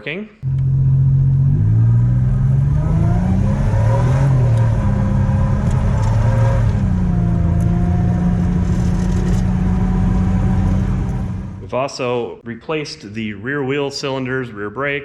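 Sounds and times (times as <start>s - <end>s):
car engine running: 0.4s - 11.7s.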